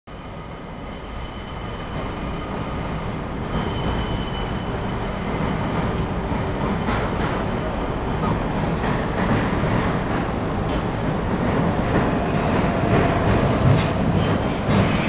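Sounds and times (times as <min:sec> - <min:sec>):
train wheels on rails: 0:00.3 - 0:15.0
high wheel squeal: 0:10.1 - 0:15.0.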